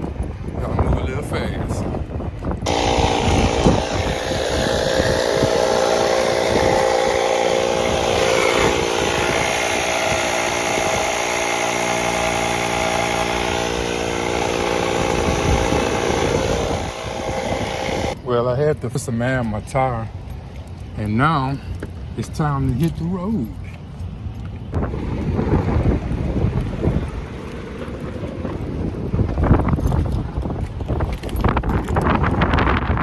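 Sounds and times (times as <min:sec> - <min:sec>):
air compressor running: 0:02.6 - 0:18.2.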